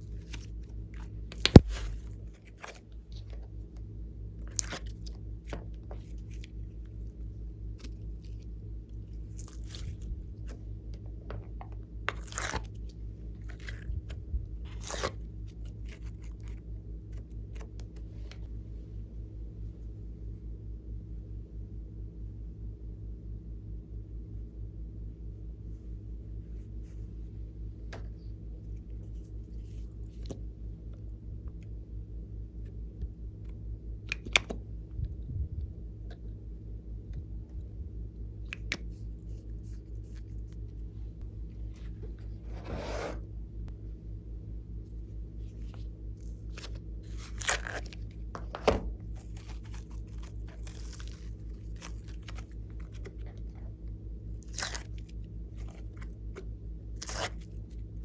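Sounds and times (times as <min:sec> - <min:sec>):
slime squishing and crackling: 0:00.0 - 0:03.3, 0:04.5 - 0:10.6, 0:11.4 - 0:16.6, 0:45.5 - 0:57.9
low hum: 0:00.0 - 0:58.0.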